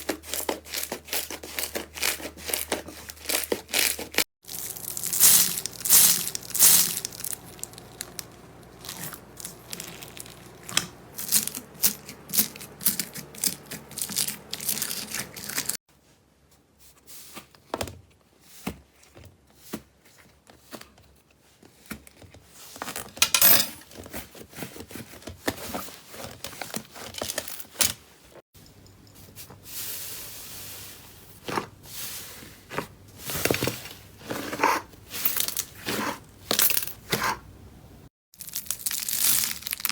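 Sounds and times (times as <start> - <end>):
slime crackling and popping: 3.3 - 15.8, 38.4 - 39.9.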